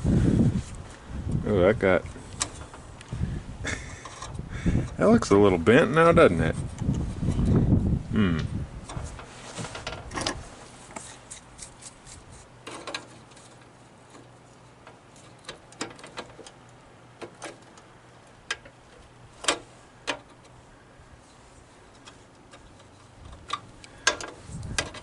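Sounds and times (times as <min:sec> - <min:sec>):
hand tools clicking and knocking: 0:11.0 - 0:17.9, 0:18.5 - 0:20.6, 0:21.9 - 0:25.0.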